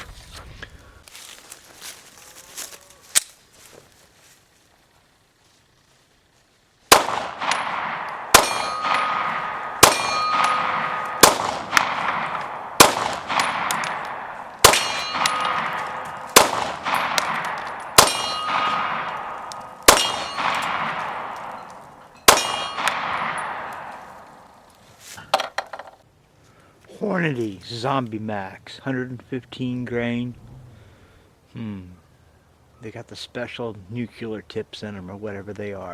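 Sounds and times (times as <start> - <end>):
pistol shots ringing: 6.9 - 24.6.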